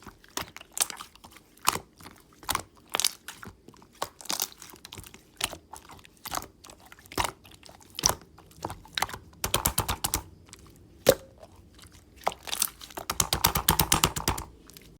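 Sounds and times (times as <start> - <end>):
slime clicking and popping: 9.0 - 10.3, 12.5 - 14.5.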